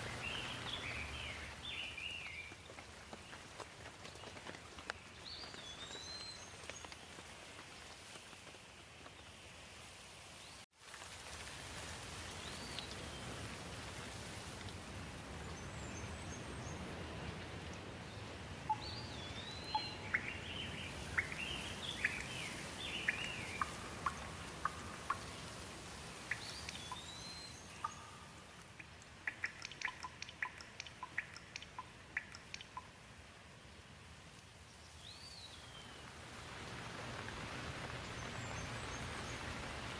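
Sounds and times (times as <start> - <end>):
steady rain: 0.0 - 39.9
sharp water drips: 18.6 - 33.2.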